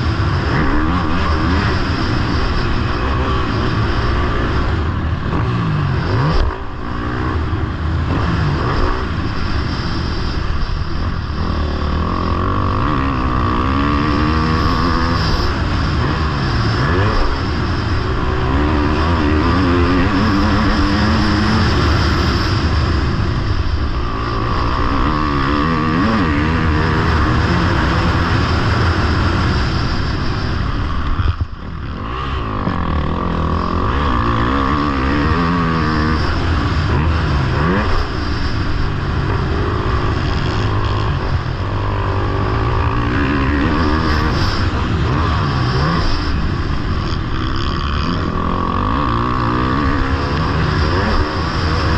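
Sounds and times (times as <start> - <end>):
motocross bike engine revving: 0.0 - 51.9.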